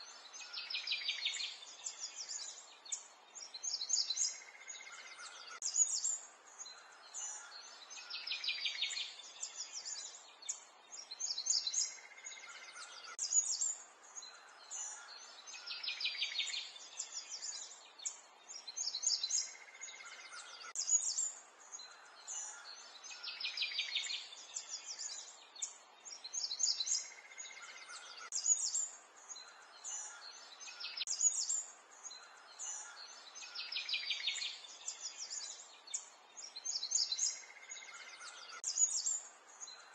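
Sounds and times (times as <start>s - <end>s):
birds chirping with trills: 0.0s - 39.9s.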